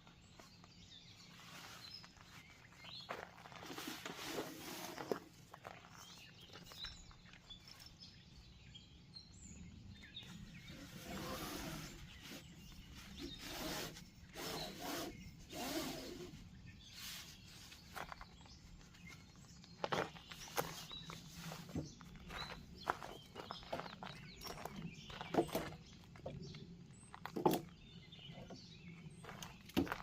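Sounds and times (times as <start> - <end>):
rustling scuffing noises: 0.0 - 8.1, 16.8 - 26.2, 29.0 - 30.0.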